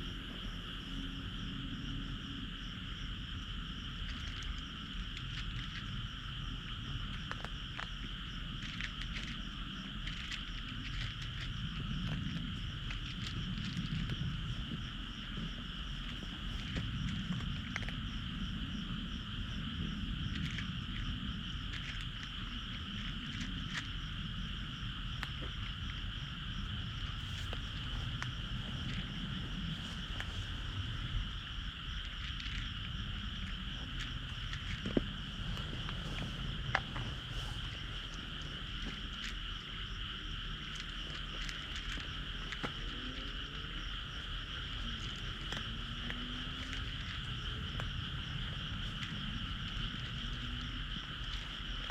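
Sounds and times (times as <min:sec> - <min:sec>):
frogs calling: 0:00.0 - 0:51.9
low rumble: 0:22.4 - 0:40.2.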